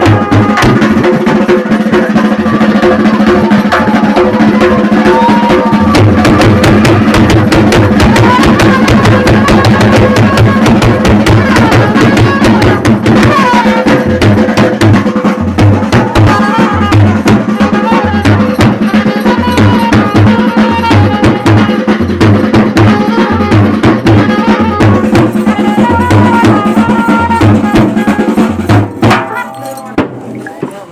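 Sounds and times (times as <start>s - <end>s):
fast dense drumming: 0.0s - 30.9s
high wavering melody: 25.0s - 30.9s.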